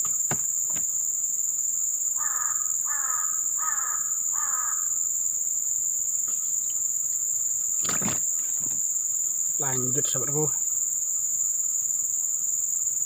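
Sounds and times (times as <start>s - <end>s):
insects droning: 0.0s - 13.0s
crow cawing: 2.2s - 5.0s.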